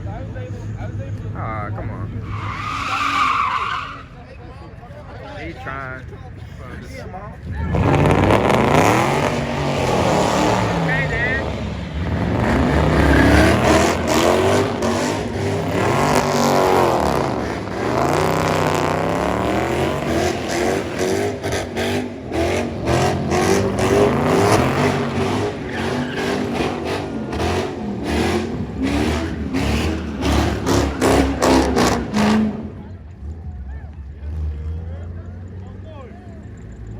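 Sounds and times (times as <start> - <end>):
car engine revving: 7.4 - 33.5.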